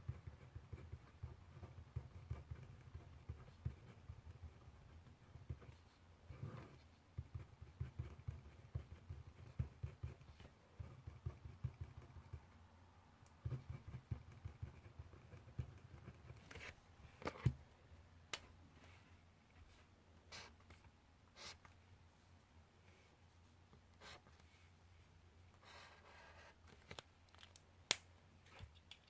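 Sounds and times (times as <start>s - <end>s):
pencil writing on paper: 0.0s - 12.5s, 13.4s - 16.7s.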